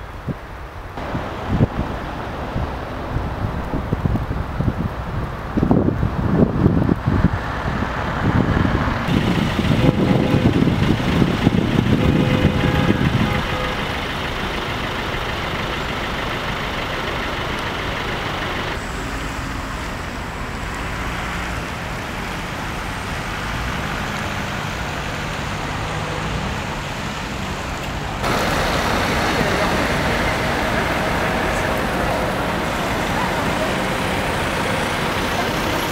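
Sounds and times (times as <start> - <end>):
street traffic: 0.0 - 35.9.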